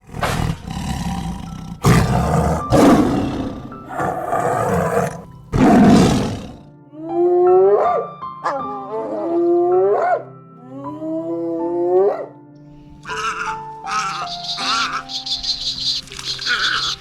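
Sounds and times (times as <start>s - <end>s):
lion roaring: 0.0s - 6.7s
background music: 0.0s - 17.0s
higher wavering animal call: 13.1s - 17.0s.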